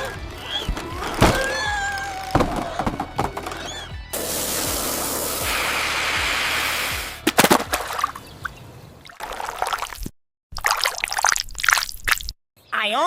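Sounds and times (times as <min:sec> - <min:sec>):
background music: 0:00.0 - 0:08.2
rushing splashing noise: 0:04.1 - 0:08.2.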